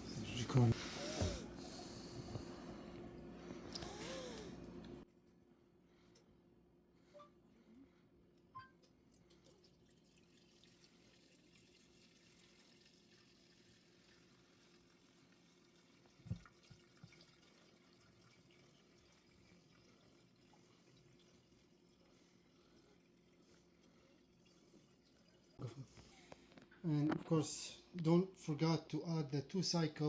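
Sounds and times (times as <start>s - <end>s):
gasoline trickling being poured: 9.2s - 25.6s.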